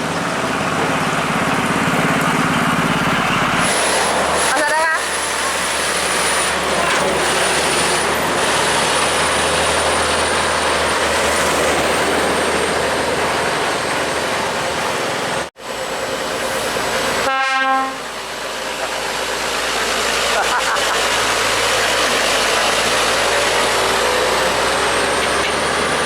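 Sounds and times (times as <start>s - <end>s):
heavy truck noise: 0.0s - 26.0s
air horn blast: 17.2s - 18.1s.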